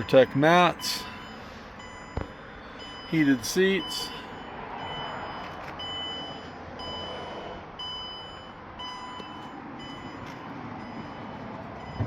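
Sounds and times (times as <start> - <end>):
warning chime beeping: 2.8 - 12.0.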